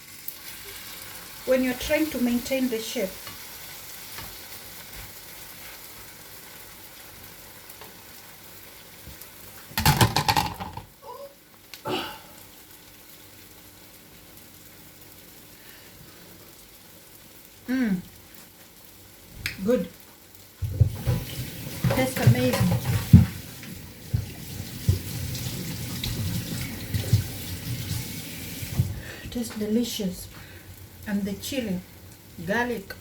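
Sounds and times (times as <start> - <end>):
omelette sizzling in frying pan: 0.0 - 33.0
loud clatter: 9.8 - 10.8.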